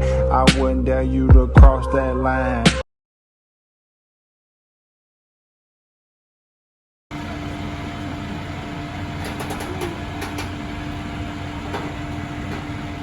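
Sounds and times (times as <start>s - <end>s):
vehicle rumble and hiss: 7.1s - 13.0s.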